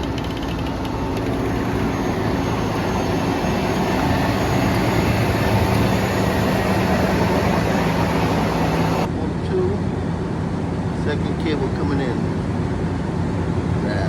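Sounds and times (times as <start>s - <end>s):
winch engine running under load: 0.0s - 9.2s.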